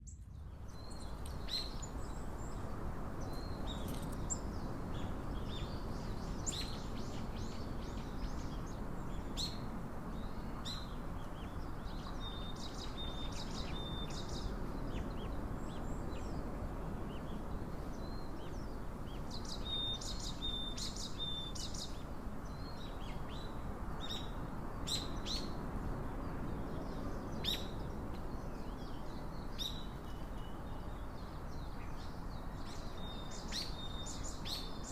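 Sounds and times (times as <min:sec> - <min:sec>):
small birds chirping: 0:00.0 - 0:25.6.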